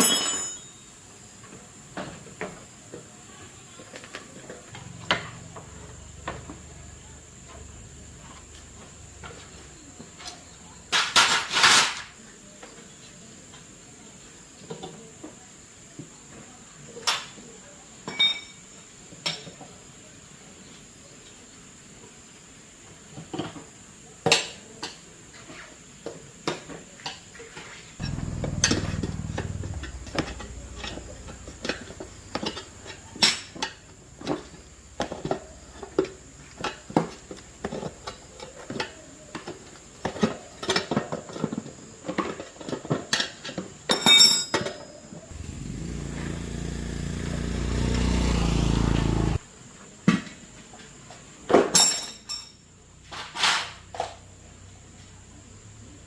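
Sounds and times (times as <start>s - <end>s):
metallic clinks of tools: 0.0s - 1.0s, 18.1s - 18.6s, 51.8s - 52.6s.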